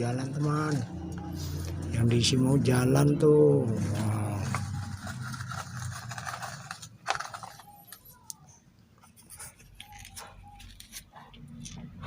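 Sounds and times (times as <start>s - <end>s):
toy truck scraping on dirt: 3.6s - 7.8s.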